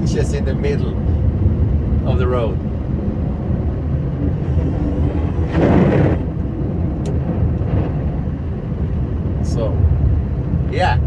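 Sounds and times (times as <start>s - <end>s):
truck engine rumbling under load: 0.0s - 11.0s
rushing surge: 3.5s - 8.2s.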